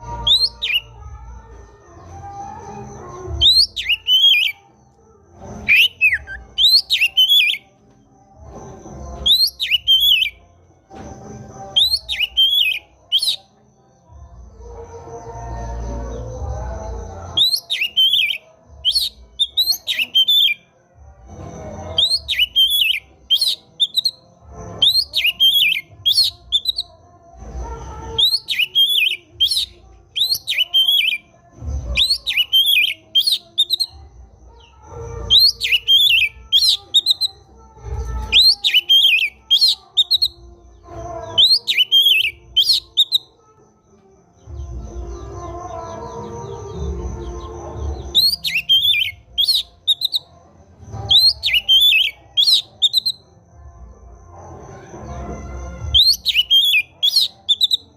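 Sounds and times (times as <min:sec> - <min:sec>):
bird singing whistled phrases: 0:00.0 - 0:01.0, 0:03.4 - 0:04.6, 0:05.6 - 0:07.6, 0:09.2 - 0:10.4, 0:11.7 - 0:13.5, 0:17.4 - 0:20.6, 0:22.0 - 0:24.2, 0:24.8 - 0:26.9, 0:28.2 - 0:31.2, 0:32.0 - 0:33.9, 0:35.3 - 0:37.5, 0:38.2 - 0:40.4, 0:41.4 - 0:43.3, 0:48.1 - 0:50.3, 0:51.1 - 0:53.2, 0:55.9 - 0:57.9.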